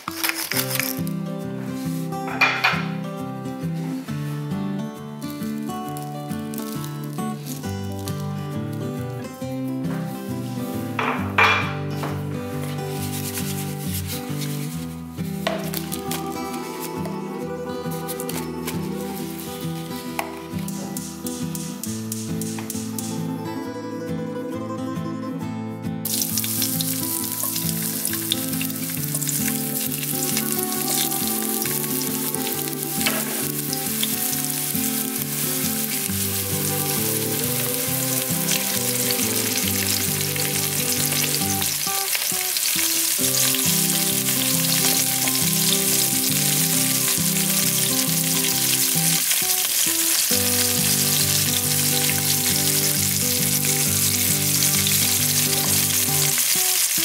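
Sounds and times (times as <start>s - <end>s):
fish sizzling in hot oil: 5.4s - 8.6s, 15.3s - 16.9s, 26.1s - 57.0s.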